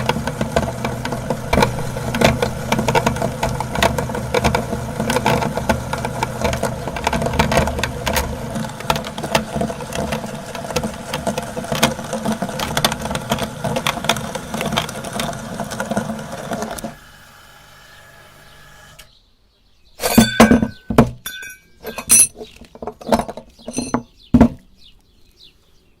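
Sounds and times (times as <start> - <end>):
electric meat grinder crackling: 0.0 - 19.1.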